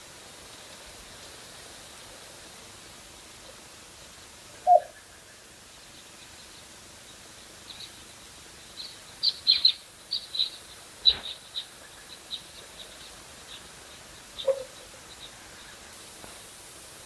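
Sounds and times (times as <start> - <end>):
steady outdoor hiss: 0.0 - 17.0
small birds chirping: 4.6 - 17.0.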